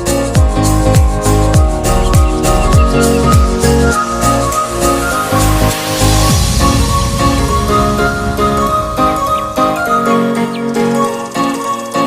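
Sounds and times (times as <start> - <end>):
deep kick drums: 0.4 - 3.6
synth notes: 0.6 - 11.4
loud electronic dance music: 1.0 - 10.7.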